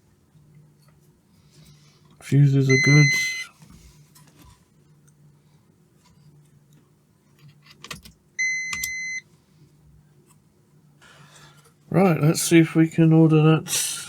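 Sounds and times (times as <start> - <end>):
multimeter continuity beep: 2.6 - 3.5, 8.4 - 9.2.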